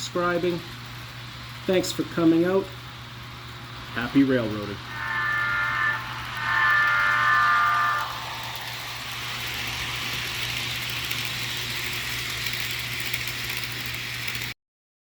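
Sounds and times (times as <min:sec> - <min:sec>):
speaker hiss and hum: 0:01.7 - 0:11.4.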